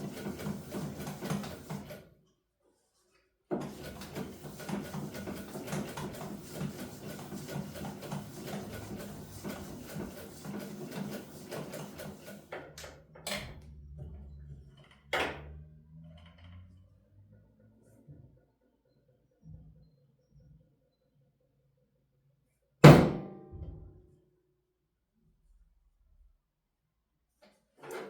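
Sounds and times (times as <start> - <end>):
sewing machine stitching: 0.0 - 2.1, 3.5 - 12.8.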